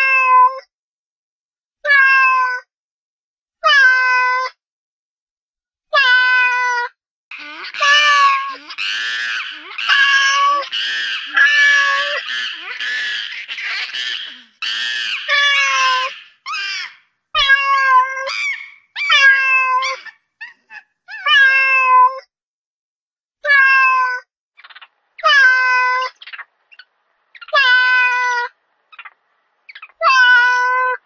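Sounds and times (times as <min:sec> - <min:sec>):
kitten meowing: 0:01.9 - 0:02.6, 0:06.0 - 0:16.8, 0:17.4 - 0:22.2, 0:23.4 - 0:24.2, 0:25.2 - 0:26.2, 0:27.5 - 0:28.5, 0:29.9 - 0:31.0.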